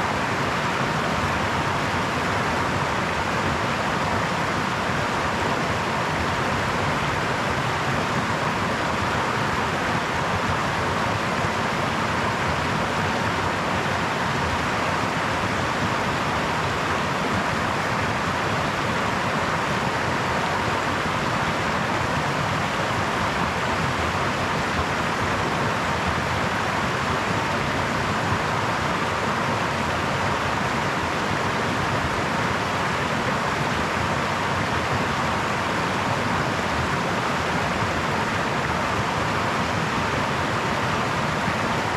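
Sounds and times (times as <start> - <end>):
brook babbling over stones: 0.0 - 41.9.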